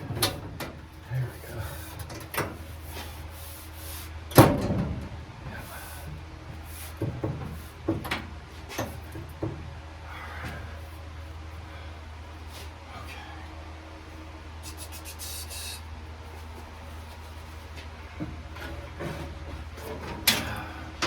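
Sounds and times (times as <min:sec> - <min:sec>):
knocks and clunks: 0:04.3 - 0:05.6, 0:07.0 - 0:09.7.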